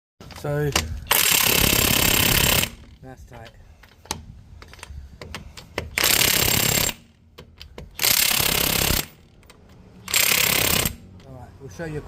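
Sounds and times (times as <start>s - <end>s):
pneumatic impact wrench hammering: 0.7s - 3.0s, 3.8s - 11.2s.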